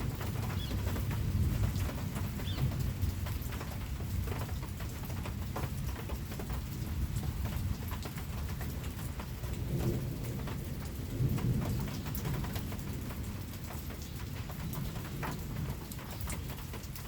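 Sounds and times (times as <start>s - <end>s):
rain drops pattering: 0.0s - 17.0s
bird chirp: 0.5s - 0.9s, 2.4s - 2.8s.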